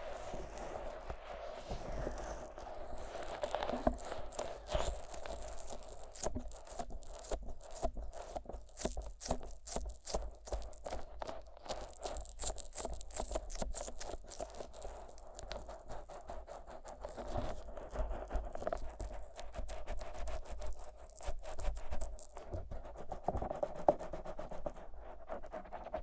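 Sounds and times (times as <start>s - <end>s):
fingers rubbing microphone: 0.0s - 7.6s
sticky squelching rubs: 0.0s - 10.8s.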